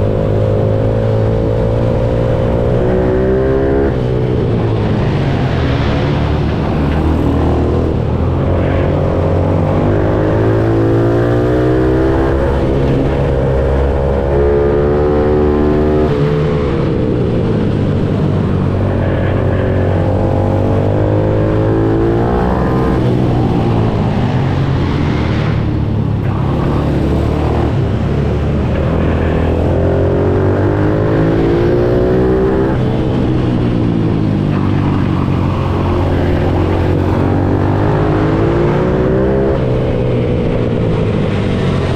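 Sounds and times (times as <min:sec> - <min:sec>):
motorbike engine revving: 0:00.0 - 0:41.9.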